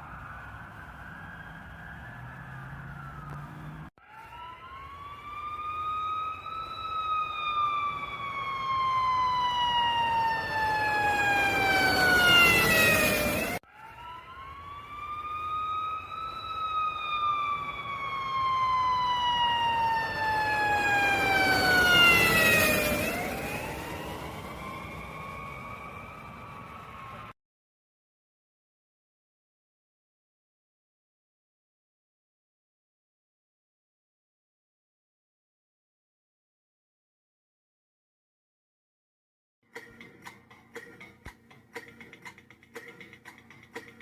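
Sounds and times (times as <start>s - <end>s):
siren wailing: 0.0s - 27.4s.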